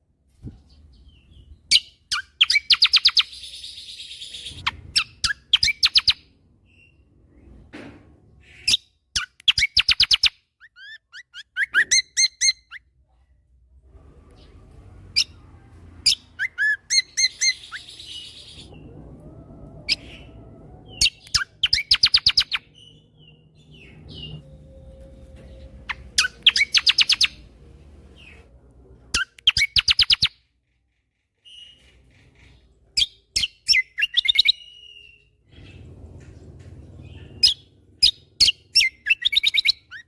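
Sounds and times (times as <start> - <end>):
bird whistled notes and chirps: 1.0 - 7.1, 8.5 - 12.9, 16.1 - 18.9, 19.8 - 27.4, 29.2 - 30.4, 33.0 - 35.4, 37.4 - 40.0
songbird singing rapid sharp notes: 20.9 - 24.4, 29.1 - 30.4.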